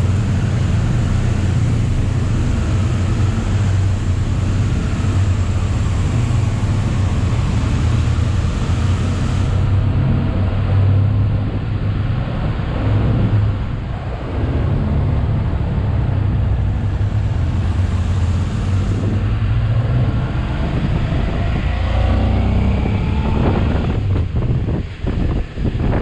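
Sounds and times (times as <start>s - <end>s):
broad rushing noise: 0.0s - 26.0s.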